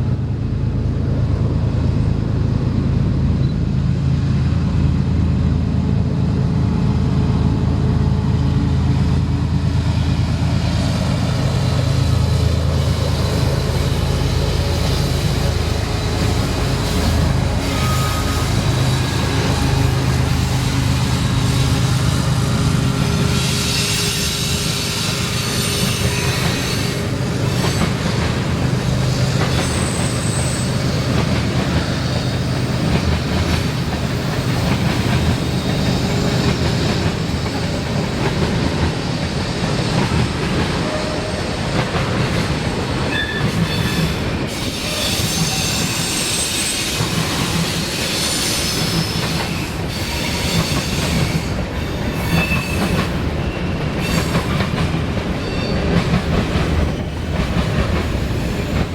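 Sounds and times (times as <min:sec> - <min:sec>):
train wheels rumbling on rail: 0:00.0 - 0:58.9
high wheel squeals: 0:13.1 - 0:32.9, 0:43.1 - 0:54.6, 0:55.3 - 0:56.0.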